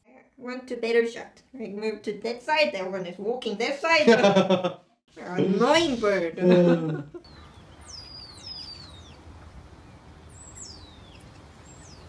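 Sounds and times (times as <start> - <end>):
faint outdoor hiss: 0.1 - 12.0.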